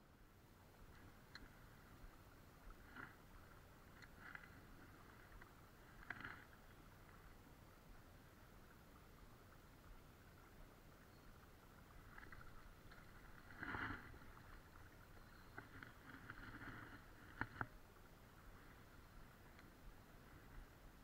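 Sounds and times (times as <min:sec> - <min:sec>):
water sloshing: 0:11.8 - 0:19.6.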